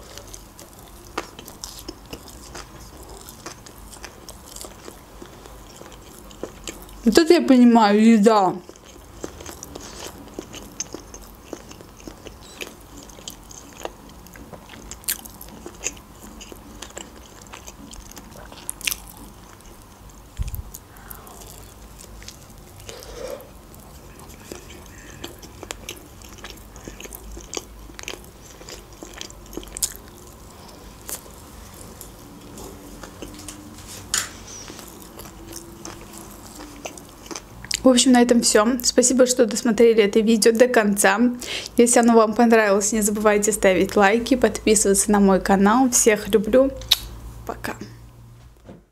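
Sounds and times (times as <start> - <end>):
chewing food: 0.0 - 7.1, 8.5 - 37.9
wet mouth smacks: 46.8 - 47.1.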